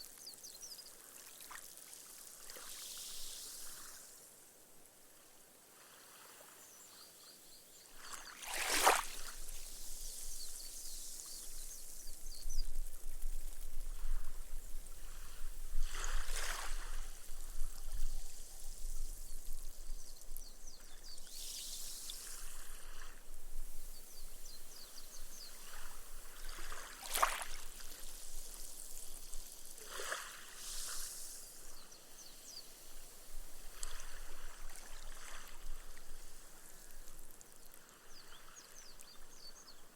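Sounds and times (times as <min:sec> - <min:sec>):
small waves lapping on sand: 0:00.0 - 0:19.6, 0:20.7 - 0:39.9.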